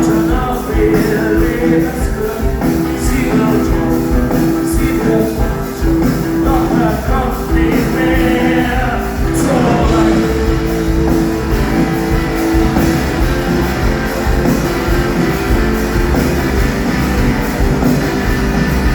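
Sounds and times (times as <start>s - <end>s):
person singing: 0.0s - 12.8s
rock band playing live: 0.0s - 18.9s.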